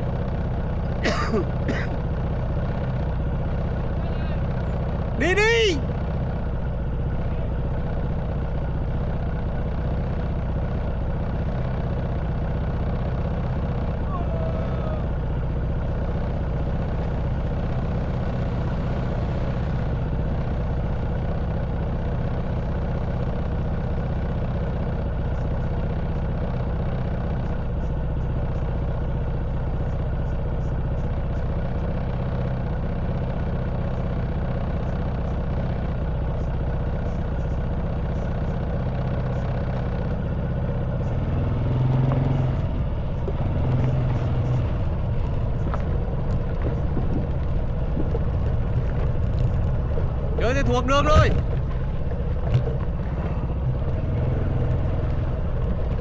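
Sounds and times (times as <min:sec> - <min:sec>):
motorbike engine running: 0:00.0 - 0:56.0
light clatter and clicks: 0:43.2 - 0:50.4, 0:51.3 - 0:53.6.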